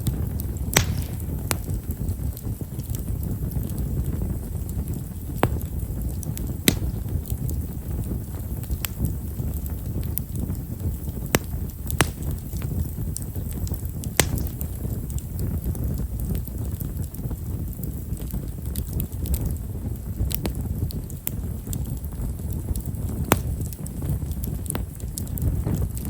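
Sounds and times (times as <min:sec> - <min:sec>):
low steady rush: 0:00.0 - 0:15.4
campfire crackling: 0:00.0 - 0:26.0.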